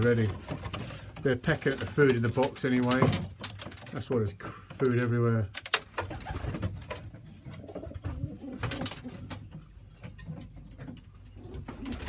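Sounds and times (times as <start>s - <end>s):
pigeons cooing: 6.0s - 9.8s, 10.5s - 12.0s.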